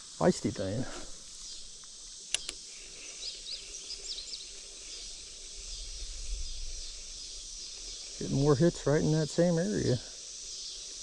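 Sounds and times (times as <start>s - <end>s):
high insect chirring: 0.0s - 11.0s
sharp clicks: 1.8s - 2.6s.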